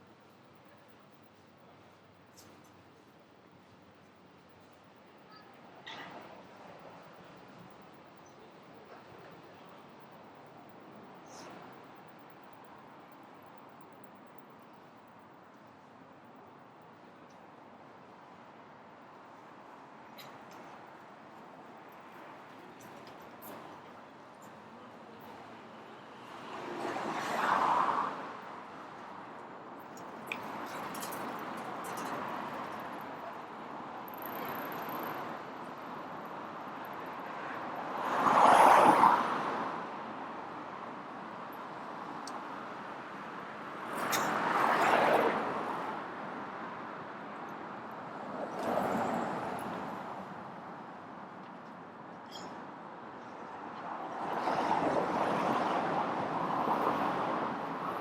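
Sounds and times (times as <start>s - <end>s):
city noise hum: 0.0s - 58.0s
street traffic noise: 0.0s - 58.0s
cars passing: 26.0s - 29.2s, 34.4s - 40.0s.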